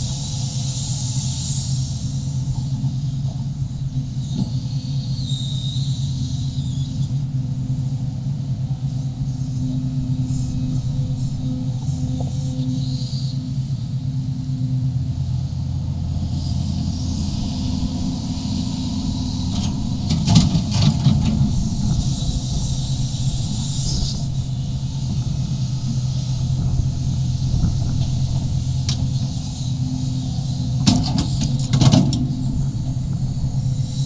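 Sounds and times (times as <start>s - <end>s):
excavator diesel engine running: 0.0s - 34.0s
sharp knocks and scrapes: 19.5s - 22.0s.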